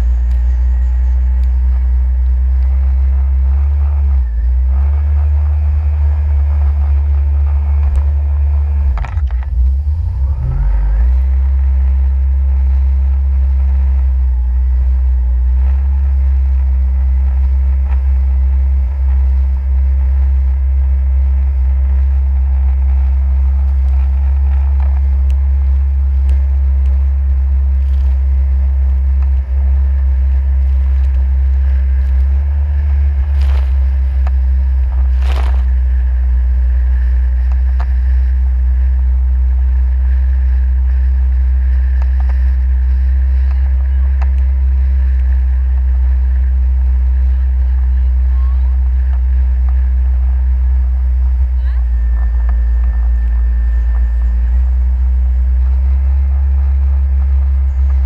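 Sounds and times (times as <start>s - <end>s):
jet ski engine rumbling: 0.0s - 58.0s.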